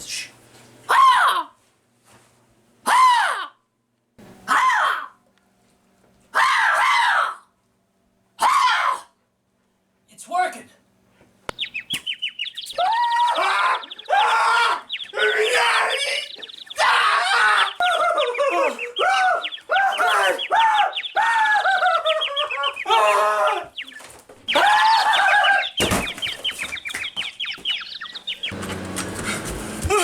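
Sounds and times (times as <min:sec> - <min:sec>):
bird squawking: 0:11.5 - 0:29.2.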